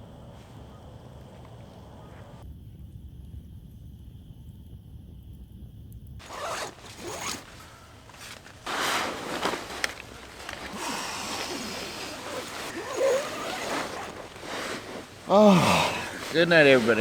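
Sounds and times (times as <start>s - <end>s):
fabric rustling: 6.2s - 17.0s
zipper pulled: 6.2s - 17.0s.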